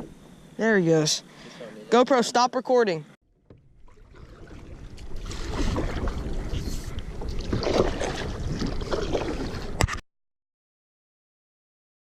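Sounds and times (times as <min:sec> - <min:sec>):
water lapping around a kayak: 0:03.3 - 0:09.8
wind rumbling on microphone: 0:03.4 - 0:09.9.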